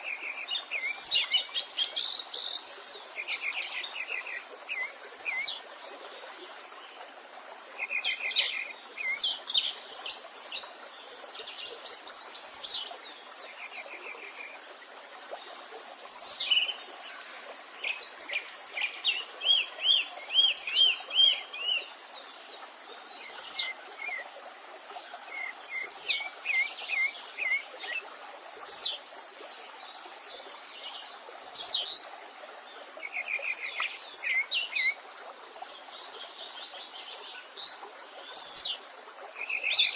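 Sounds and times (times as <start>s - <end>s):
faint steady stream: 0.0s - 39.9s
songbirds singing and calling: 0.0s - 39.9s.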